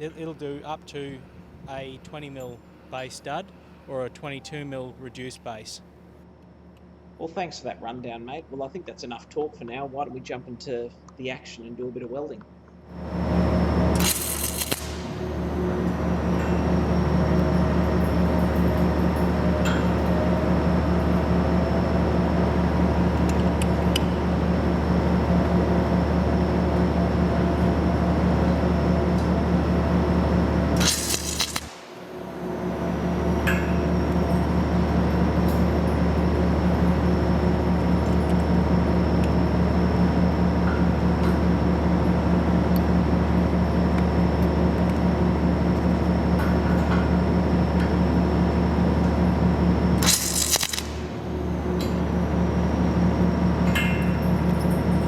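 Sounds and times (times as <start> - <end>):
machine humming: 0.0 - 8.7, 12.9 - 55.0
crackling burst: 14.0 - 15.4, 30.8 - 33.0, 50.0 - 51.4
thin high whine: 30.4 - 41.1.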